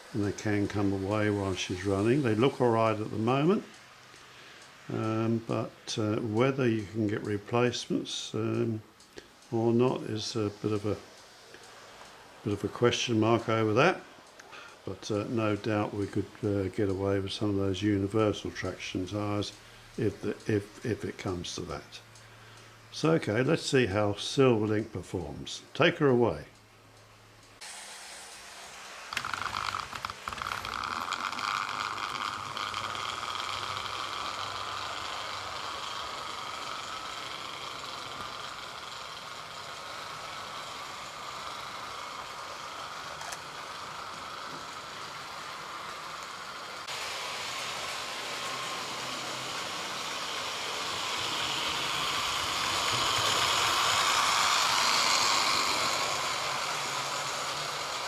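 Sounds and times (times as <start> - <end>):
rumble of wheels on track: 0.0 - 22.2, 28.7 - 58.0
model train motor whir: 0.0 - 25.2, 26.9 - 58.0.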